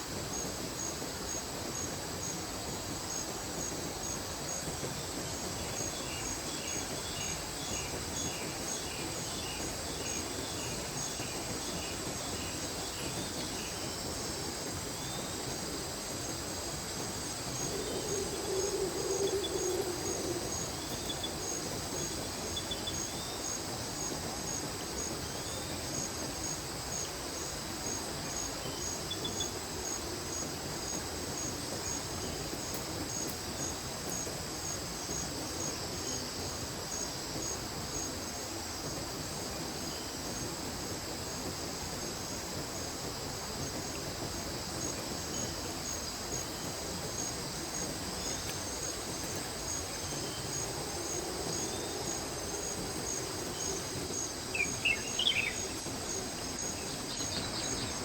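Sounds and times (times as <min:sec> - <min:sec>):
insects trilling: 0:00.0 - 0:58.0
creek rushing: 0:40.6 - 0:58.0.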